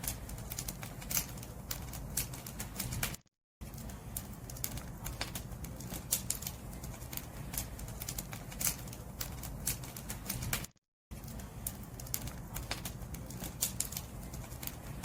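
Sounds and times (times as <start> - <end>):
firewood crackling and popping: 0.0 - 15.0.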